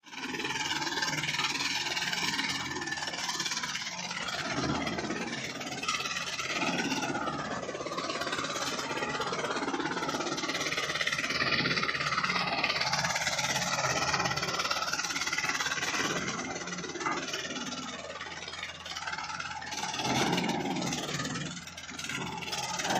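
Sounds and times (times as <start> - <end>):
tractor diesel engine running: 0.0 - 22.9.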